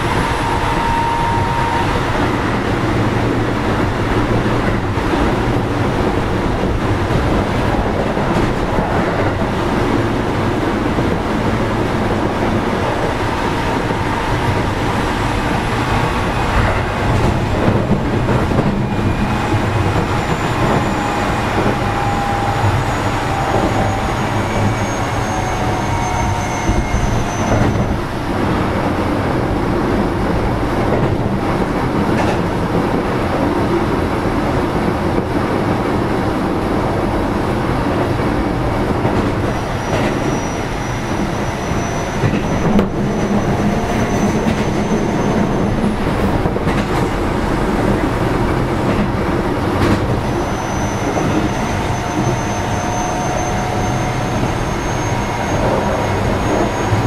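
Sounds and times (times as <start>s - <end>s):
train wheels rumbling on rail: 0.0s - 57.0s
clicks of train wheels: 32.0s - 32.9s, 39.0s - 40.8s, 41.7s - 47.2s, 48.0s - 57.0s.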